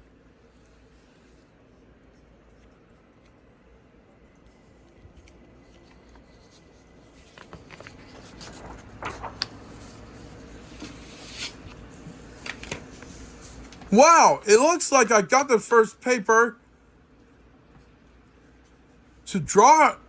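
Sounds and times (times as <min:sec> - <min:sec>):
paper rustling: 0:04.4 - 0:14.0.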